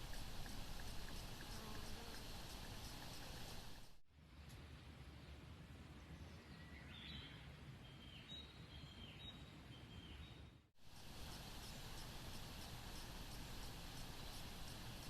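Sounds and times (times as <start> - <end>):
faint rapid high ticking: 0.0 - 4.0, 10.8 - 15.0
faint forest ambience: 0.0 - 15.0
bird singing whistled notes: 6.5 - 10.5.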